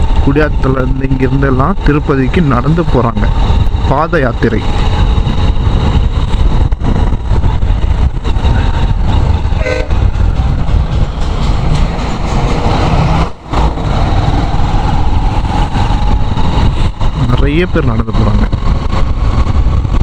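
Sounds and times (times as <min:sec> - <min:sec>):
motorcycle engine and wind rumble: 0:00.0 - 0:20.0
horn toot: 0:09.6 - 0:10.1.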